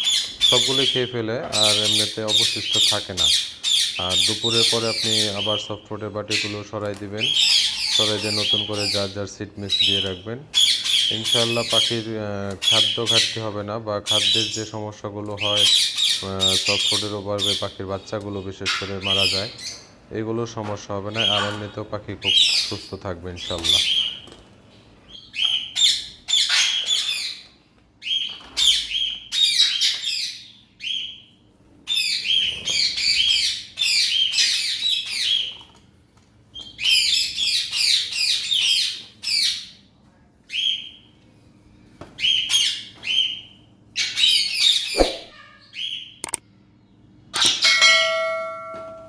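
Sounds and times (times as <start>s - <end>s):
parrots squawking and chattering: 0.0s - 6.6s, 7.2s - 13.5s, 14.1s - 14.7s, 15.4s - 20.1s, 21.1s - 24.4s, 25.1s - 35.8s, 36.6s - 39.8s, 42.2s - 46.4s
sharp knock: 45.0s - 45.3s.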